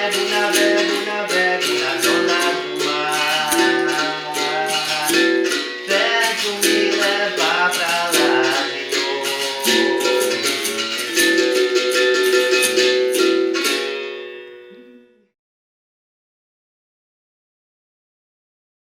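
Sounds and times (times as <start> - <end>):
person singing: 0.0 - 13.3
berimbau rhythm: 0.0 - 15.0.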